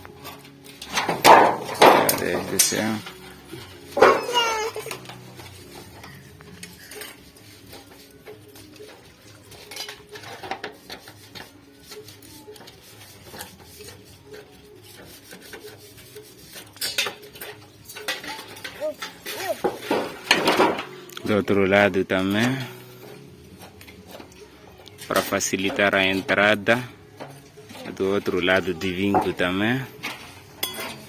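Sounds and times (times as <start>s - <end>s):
tools tapping on sheet steel: 0.8s - 5.9s, 16.4s - 21.0s, 25.1s - 31.0s.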